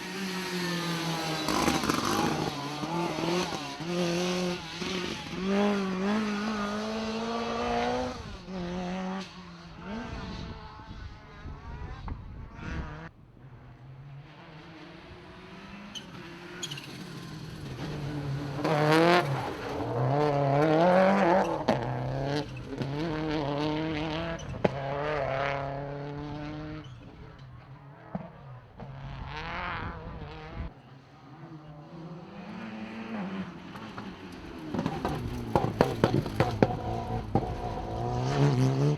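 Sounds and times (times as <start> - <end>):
rally car engine revving: 0.0 - 38.9.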